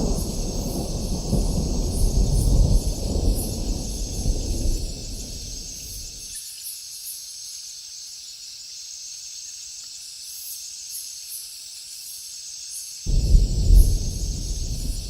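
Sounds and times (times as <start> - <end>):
rain on a tin roof: 0.0 - 6.3, 13.1 - 15.0
loud low rumble: 13.1 - 15.0.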